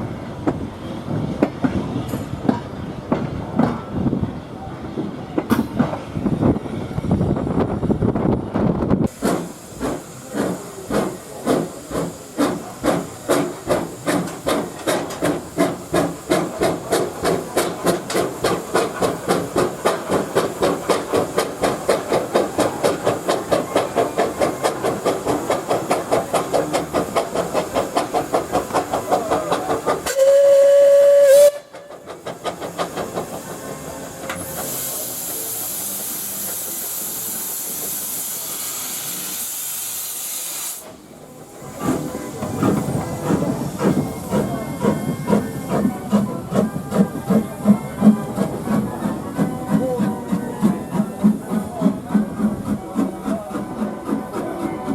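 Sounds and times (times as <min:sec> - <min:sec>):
steam locomotive chuffing: 0:05.0 - 0:54.9
steam hissing: 0:09.1 - 0:54.9
steam whistle blast: 0:30.0 - 0:31.8.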